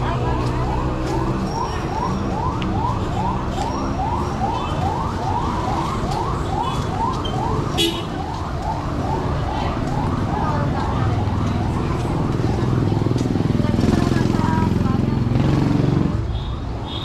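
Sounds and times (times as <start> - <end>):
siren sweeping: 0.2 - 13.3.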